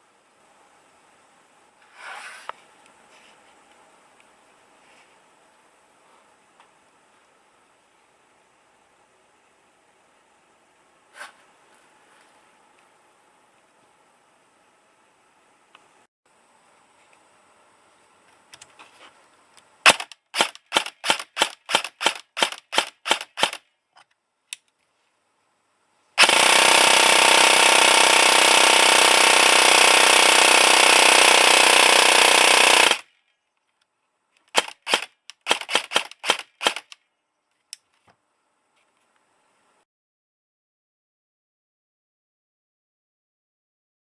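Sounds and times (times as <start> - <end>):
airsoft gun full-auto burst: 19.9 - 23.6, 26.2 - 33.1, 34.5 - 37.0
airsoft gun single shots: 19.9 - 23.6.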